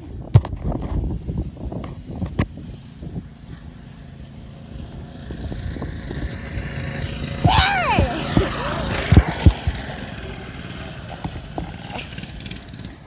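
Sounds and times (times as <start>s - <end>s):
dirt bike engine: 4.0s - 13.0s
short high cry: 7.4s - 9.0s.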